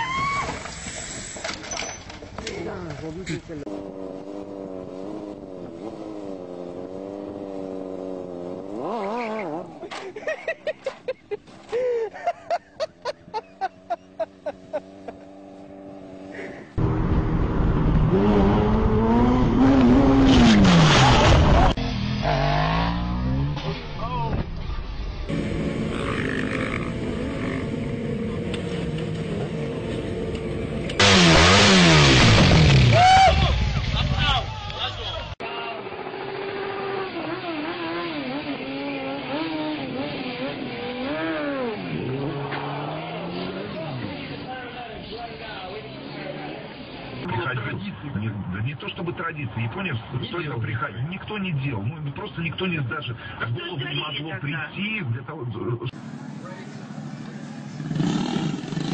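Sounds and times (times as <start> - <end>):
vehicle engine revving: 3.5 - 9.9, 13.4 - 24.2, 25.1 - 34.5, 35.3 - 44.7, 55.9 - 58.9
burst of harsh noise: 31.0 - 33.0.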